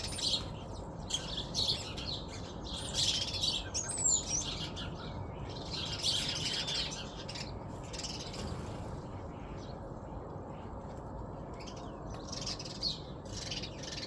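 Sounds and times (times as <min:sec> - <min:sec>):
low background noise: 0:00.0 - 0:14.0
small birds chirping: 0:00.0 - 0:14.0.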